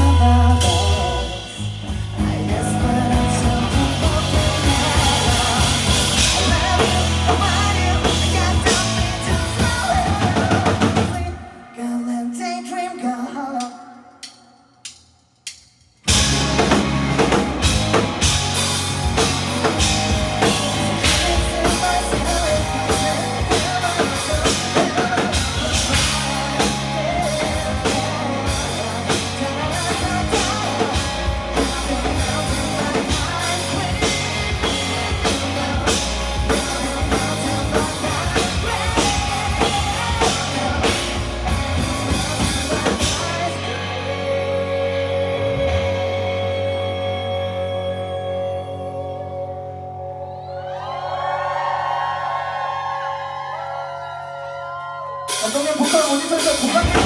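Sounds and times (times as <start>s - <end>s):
bass guitar: 0.0s - 11.4s, 16.1s - 57.0s
drum kit: 0.0s - 11.5s, 13.6s - 46.5s, 55.2s - 57.0s
electric guitar: 0.0s - 11.6s, 16.1s - 57.0s.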